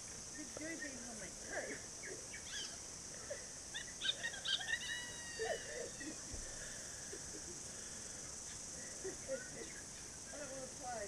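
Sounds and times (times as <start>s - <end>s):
insects hissing: 0.0s - 11.0s
birds chirping and whistling: 3.8s - 5.7s.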